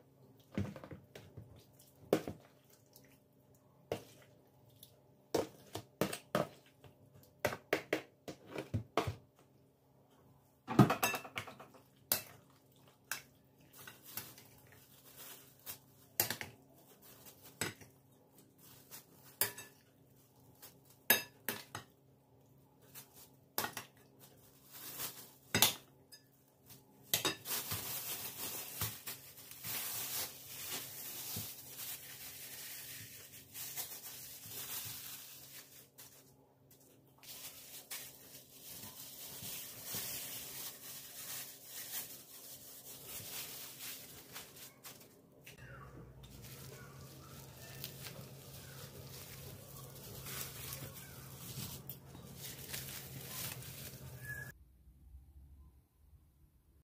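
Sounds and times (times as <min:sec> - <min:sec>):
dishes and cutlery clinking: 0:19.3 - 0:19.9.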